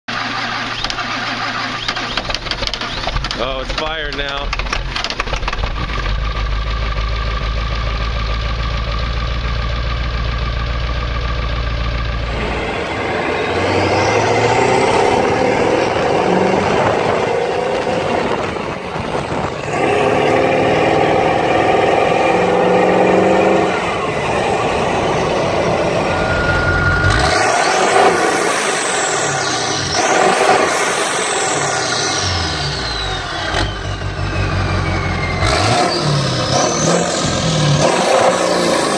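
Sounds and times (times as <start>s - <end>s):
diesel engine idling and revving: 0.0s - 38.9s
turbo whistle: 25.9s - 30.5s.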